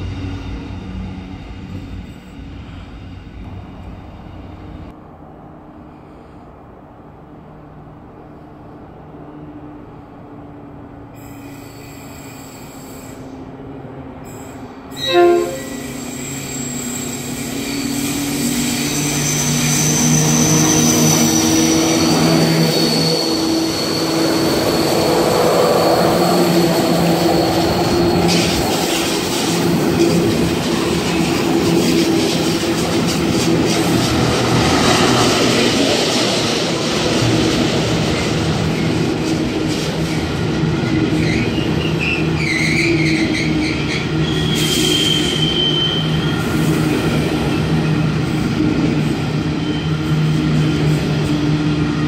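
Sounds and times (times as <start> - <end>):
diesel locomotive engine drone: 0.0 - 52.0
thin high wheel squeal: 11.2 - 13.3, 14.3 - 29.8, 41.2 - 46.6
train horn blast: 14.9 - 16.2.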